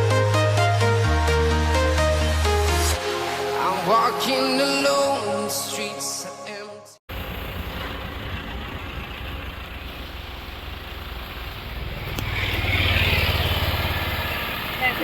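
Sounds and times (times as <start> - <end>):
car engine rumble: 7.1 - 15.0
road noise: 7.1 - 15.0.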